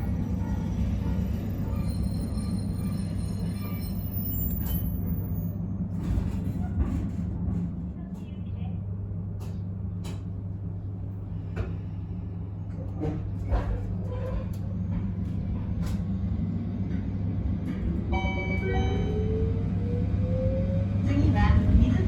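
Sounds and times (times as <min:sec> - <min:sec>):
train running hum: 0:00.0 - 0:22.0
rail-joint clicks: 0:12.7 - 0:16.2.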